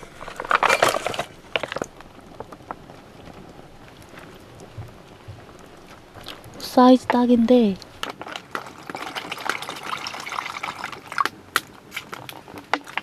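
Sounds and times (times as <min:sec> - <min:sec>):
food packaging rustling: 0:00.0 - 0:04.8
faint steady hiss: 0:00.0 - 0:13.0.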